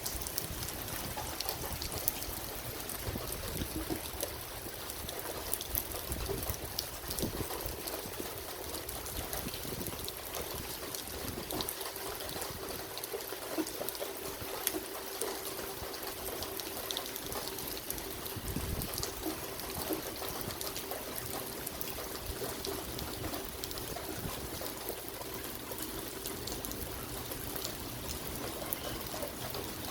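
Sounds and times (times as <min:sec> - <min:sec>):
steady rain: 0:00.0 - 0:29.9
water trickling and pouring: 0:00.0 - 0:29.9.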